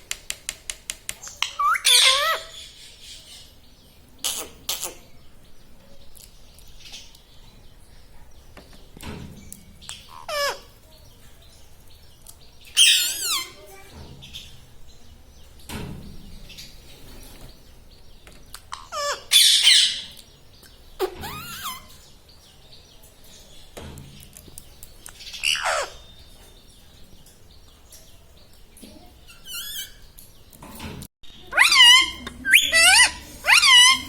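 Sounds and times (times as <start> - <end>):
parakeet shrill calls: 1.5 - 3.4, 12.8 - 13.6, 18.7 - 20.2, 21.2 - 21.9, 25.3 - 26.1, 29.4 - 30.0, 31.5 - 34.0.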